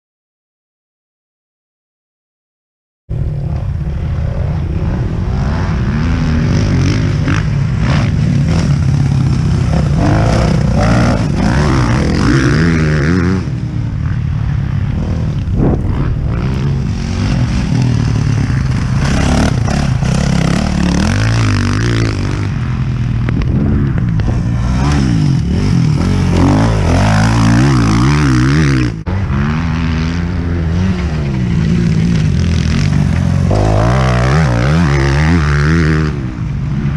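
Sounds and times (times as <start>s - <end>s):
motocross bike engine revving: 3.4s - 36.9s.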